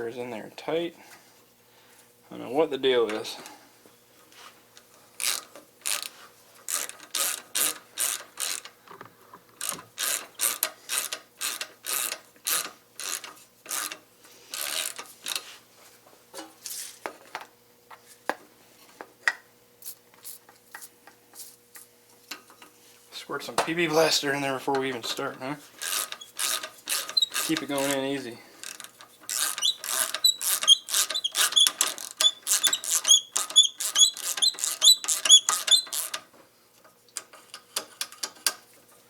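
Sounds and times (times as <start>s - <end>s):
ratchet wrench clicking: 5.2s - 6.1s, 6.7s - 8.7s, 9.6s - 15.4s, 25.8s - 28.0s, 28.6s - 36.2s.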